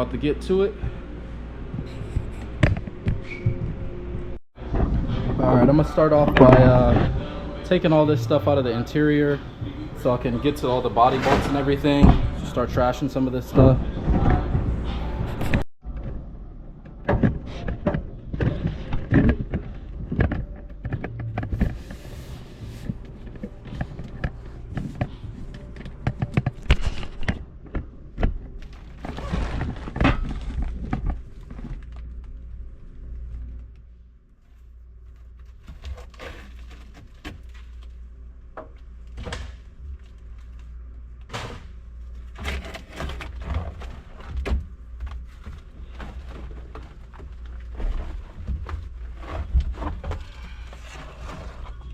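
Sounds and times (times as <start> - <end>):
junk clunking and scraping: 9.5 - 32.1, 35.2 - 51.9.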